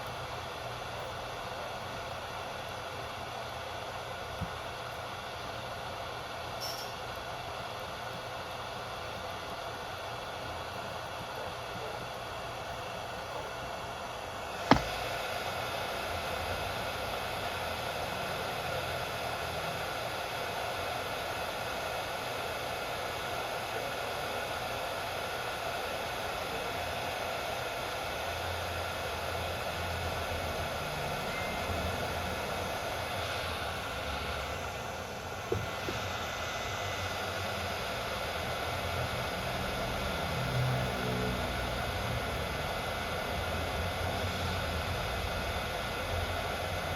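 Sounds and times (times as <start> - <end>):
faint knock: 14.7 - 15.0, 35.4 - 36.1
sharp click: 14.7 - 15.0.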